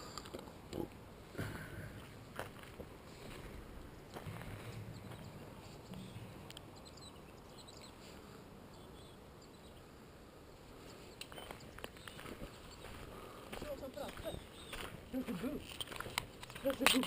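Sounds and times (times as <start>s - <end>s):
faint bird chirps: 4.6s - 15.0s.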